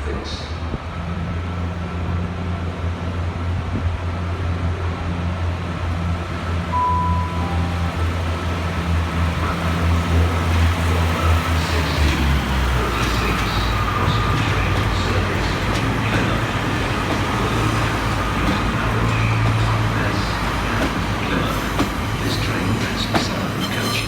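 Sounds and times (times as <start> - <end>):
diesel train engine idling: 0.0 - 23.6
short beeps: 6.7 - 8.0.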